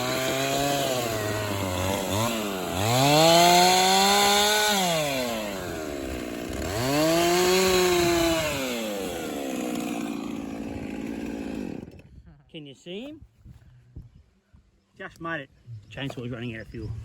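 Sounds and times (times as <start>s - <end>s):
chainsaw revving: 0.0s - 12.1s.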